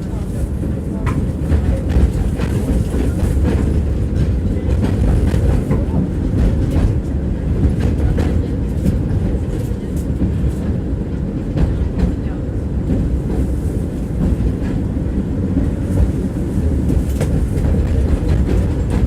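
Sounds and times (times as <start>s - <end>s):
tram rumbling: 0.0s - 19.0s.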